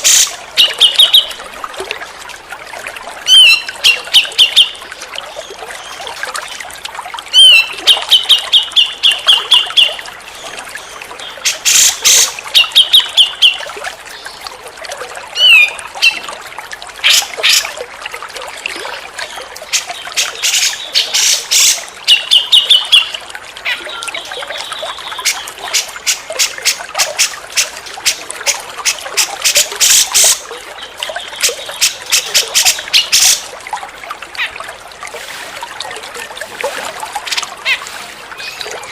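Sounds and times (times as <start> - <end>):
trickle of running water: 0.0 - 38.9
bird calling high notes and chattering: 3.3 - 4.8, 15.4 - 16.2, 23.7 - 28.2.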